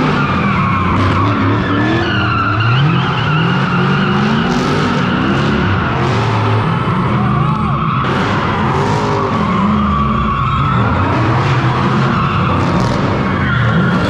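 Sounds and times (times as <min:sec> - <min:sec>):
car engine revving hard: 0:00.0 - 0:14.0
tyres squealing and skidding: 0:00.0 - 0:14.0.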